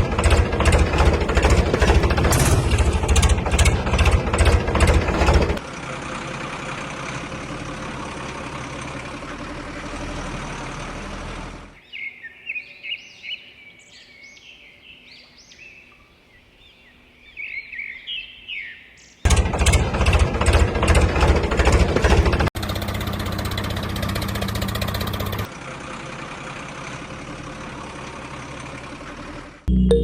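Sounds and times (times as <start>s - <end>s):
birds chirping and twittering: 11.8s - 19.4s.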